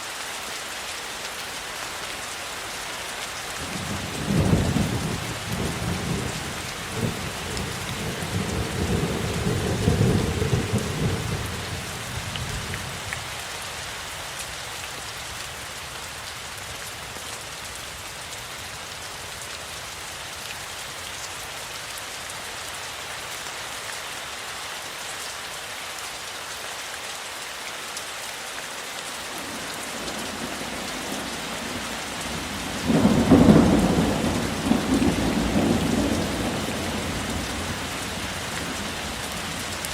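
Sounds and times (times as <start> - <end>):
rain falling: 0.0 - 39.9
thunder rumbling: 4.0 - 12.8, 31.6 - 39.0.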